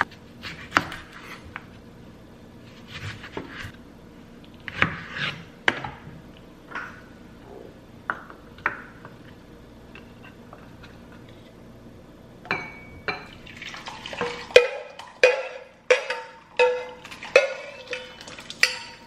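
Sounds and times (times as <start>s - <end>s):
utensil clinking on cookware: 14.2s - 19.0s.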